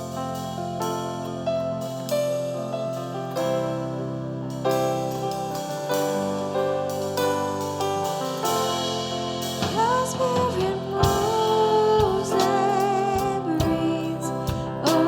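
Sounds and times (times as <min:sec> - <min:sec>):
held keyboard chords: 0:00.0 - 0:15.0.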